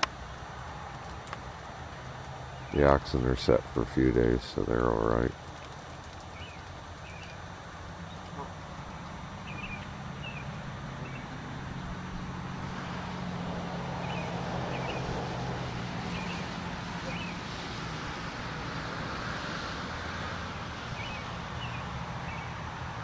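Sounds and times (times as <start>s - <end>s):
car passing by: 6.4s - 23.0s
high bird chirps: 9.4s - 11.3s, 16.1s - 17.4s.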